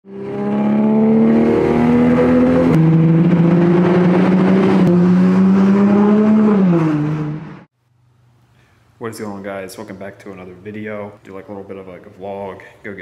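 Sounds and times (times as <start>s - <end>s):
car exhaust accelerating: 0.1s - 7.7s.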